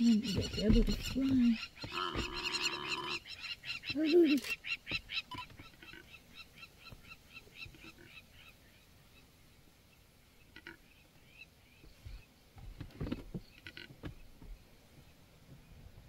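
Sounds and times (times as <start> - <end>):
short bird calls: 0.0 - 9.3.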